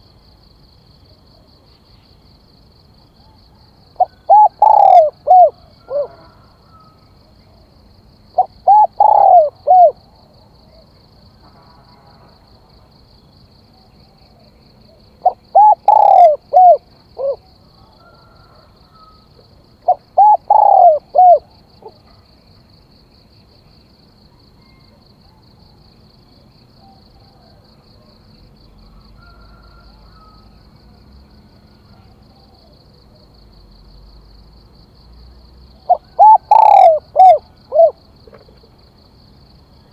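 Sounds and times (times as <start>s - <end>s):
dove cooing: 3.2s - 7.0s, 8.4s - 10.0s, 14.9s - 22.1s, 35.8s - 38.6s.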